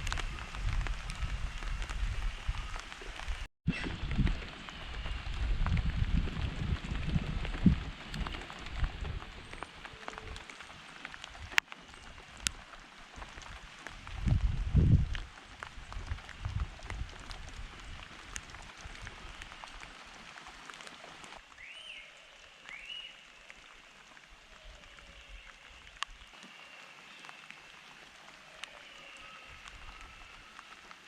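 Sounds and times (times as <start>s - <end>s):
rain dripping: 0.0s - 31.0s
bird calls: 21.5s - 23.8s.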